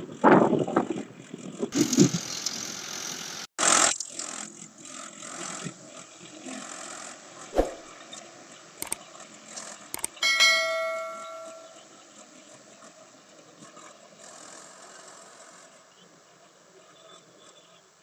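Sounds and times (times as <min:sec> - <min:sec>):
faint engine noise: 0:01.3 - 0:03.5
short clicks: 0:10.0 - 0:10.2
metallic ring: 0:10.0 - 0:11.8.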